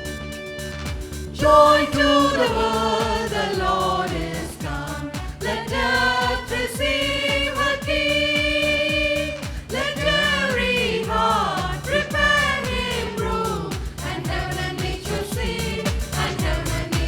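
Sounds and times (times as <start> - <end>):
backing track with steady beat: 0.0 - 17.0
group singing christmas song: 1.0 - 17.0.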